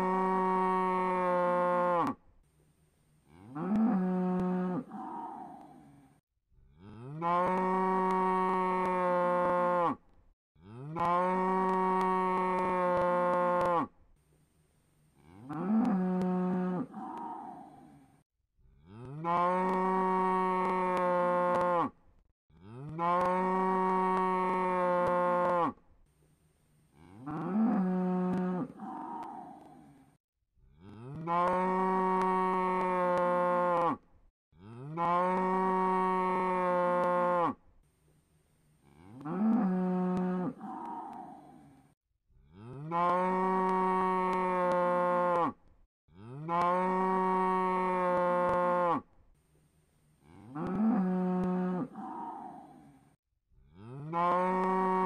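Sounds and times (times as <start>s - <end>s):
cow mooing: 0.0s - 2.2s, 3.3s - 6.0s, 6.7s - 10.0s, 10.6s - 13.9s, 15.2s - 18.0s, 18.8s - 22.0s, 22.6s - 25.8s, 27.0s - 29.9s, 30.8s - 34.0s, 34.6s - 37.6s, 38.9s - 41.8s, 42.5s - 45.6s, 46.2s - 49.1s, 50.2s - 53.0s, 53.8s - 55.0s.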